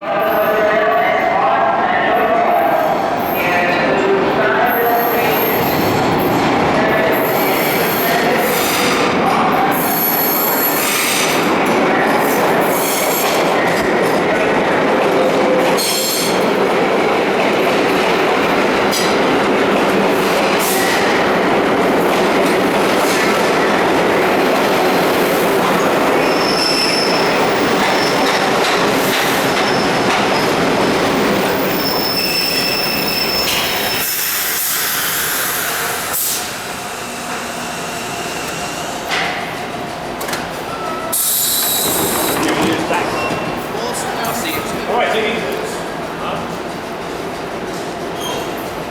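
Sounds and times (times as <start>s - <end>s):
train rumbling: 2.6s - 48.9s
brake and wheel squeals: 26.3s - 28.3s, 31.6s - 34.7s, 48.2s - 48.5s
train wheels clattering: 39.0s - 48.8s.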